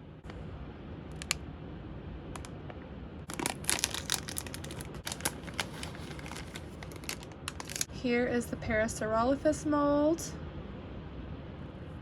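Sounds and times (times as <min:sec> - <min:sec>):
packaging crinkling: 0:03.3 - 0:07.9.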